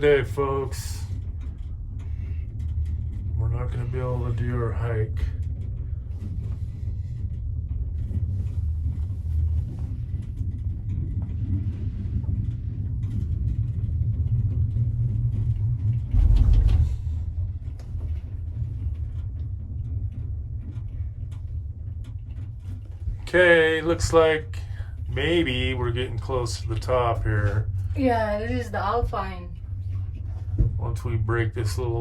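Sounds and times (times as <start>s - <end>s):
gondola cabin rumble: 0.0s - 32.0s
low thump: 30.2s - 31.3s.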